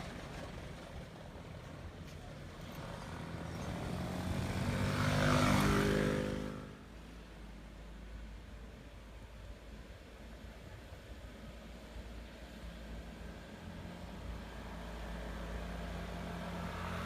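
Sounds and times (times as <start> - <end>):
vehicle engine passing by: 2.6 - 6.9, 13.8 - 17.0.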